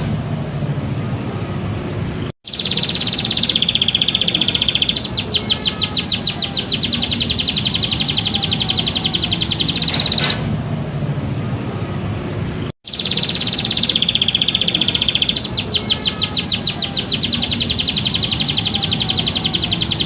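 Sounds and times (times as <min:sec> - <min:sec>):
steady low hum: 0:00.0 - 0:02.4, 0:06.4 - 0:12.7
songbird trilling: 0:02.5 - 0:10.4, 0:12.9 - 0:20.0.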